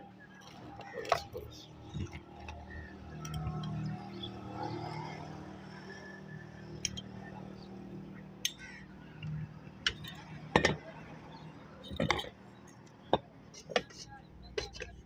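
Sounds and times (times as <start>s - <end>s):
sharp metallic clinks and knocks: 0.4s - 4.9s, 6.8s - 7.2s, 9.2s - 15.0s.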